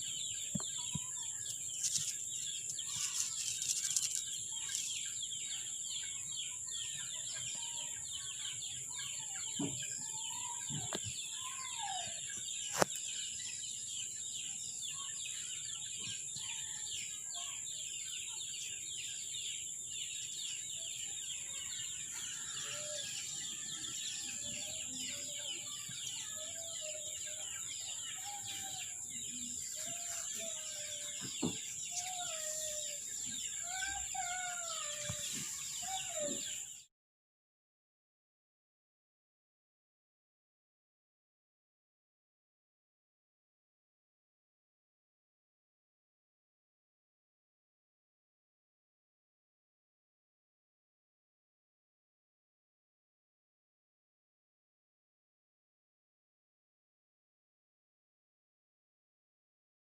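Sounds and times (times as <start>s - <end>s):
bird calls: 0.0s - 36.9s.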